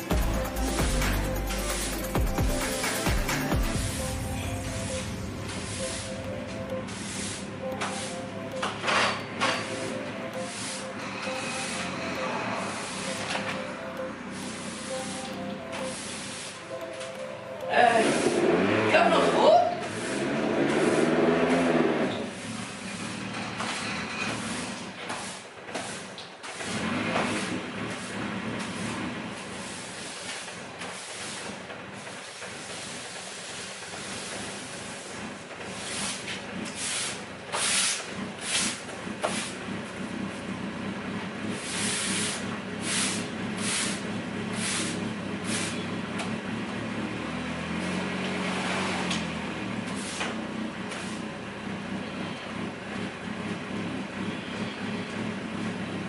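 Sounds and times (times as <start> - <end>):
car engine idling: 0.0 - 10.6, 32.8 - 56.0
short sharp hisses: 44.6 - 45.8.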